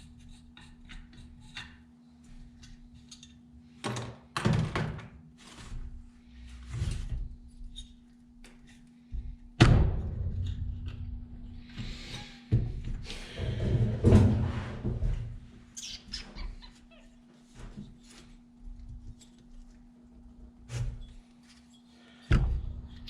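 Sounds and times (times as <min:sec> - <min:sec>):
steady low hum: 0:05.6 - 0:23.0.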